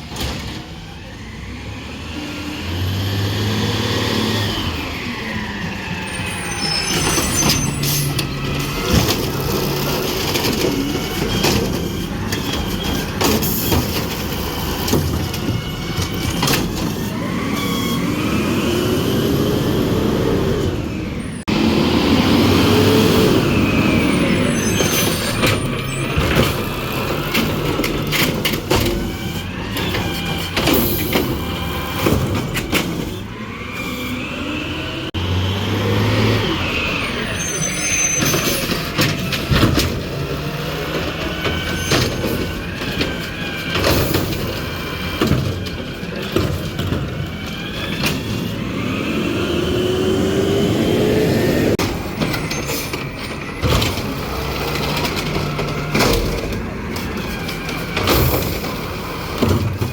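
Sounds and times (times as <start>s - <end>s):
hydraulic whines: 1.0s - 59.9s
metal clanks and bangs: 6.9s - 17.4s, 24.0s - 33.3s, 38.1s - 48.6s, 51.7s - 59.9s.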